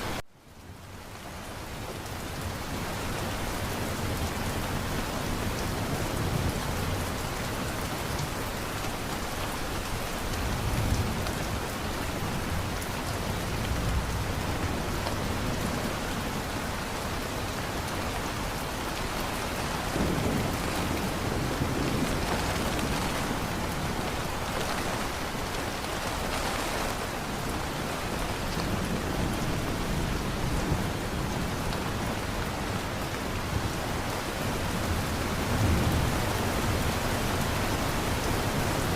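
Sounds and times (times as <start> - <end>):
heavy rain pouring: 0.0 - 38.9
low thunder rumbling: 18.3 - 32.2.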